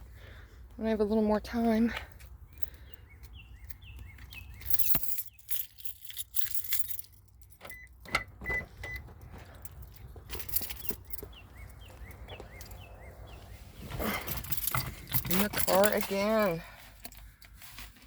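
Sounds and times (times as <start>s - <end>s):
birds chirping: 1.7s - 5.6s, 8.6s - 16.6s
car keys jangling: 2.1s - 17.6s
short electronic beeps from car: 7.6s - 9.1s.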